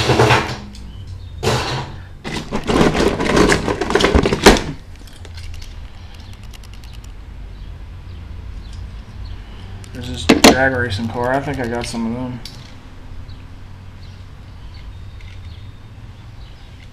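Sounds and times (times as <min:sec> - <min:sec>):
toy cars clattering: 0:01.4 - 0:07.2, 0:09.8 - 0:12.8, 0:14.7 - 0:15.7, 0:16.6 - 0:16.9
sharp clicks: 0:05.2 - 0:07.2, 0:11.0 - 0:12.8.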